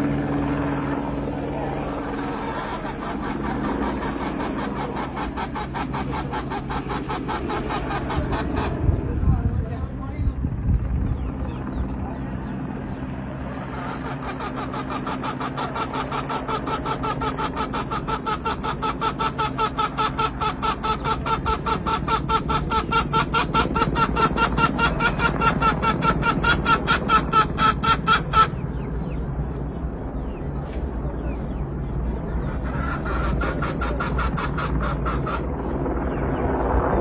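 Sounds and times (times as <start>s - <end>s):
helicopter rotor whining: 0.0s - 37.0s.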